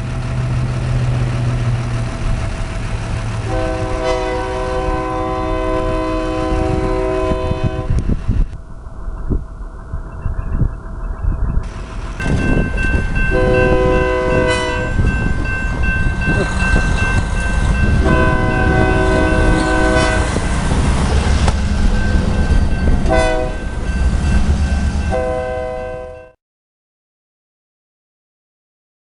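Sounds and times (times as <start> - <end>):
train rumbling past: 0.0 - 26.4
locomotive air horn blasts: 3.4 - 8.2, 13.3 - 15.2, 17.8 - 20.4, 23.0 - 23.7, 25.1 - 26.4
crossing signal bell ringing: 9.9 - 20.6, 21.2 - 26.4.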